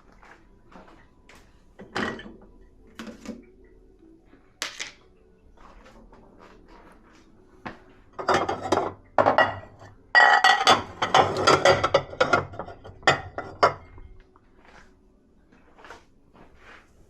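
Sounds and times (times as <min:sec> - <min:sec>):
dishes and cutlery clinking: 0:01.8 - 0:03.5, 0:08.1 - 0:14.8.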